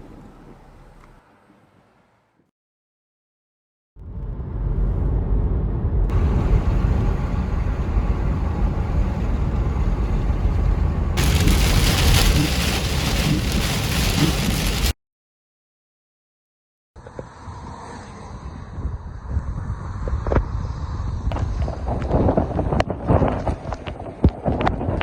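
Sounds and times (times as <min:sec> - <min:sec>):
heavy rain rushing: 0:06.1 - 0:15.0
wind buffeting microphone: 0:18.4 - 0:25.0.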